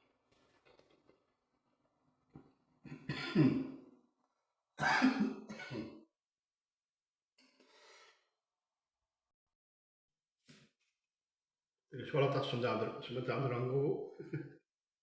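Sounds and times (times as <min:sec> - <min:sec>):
man coughing and clearing throat: 0:02.9 - 0:03.8, 0:04.8 - 0:06.0.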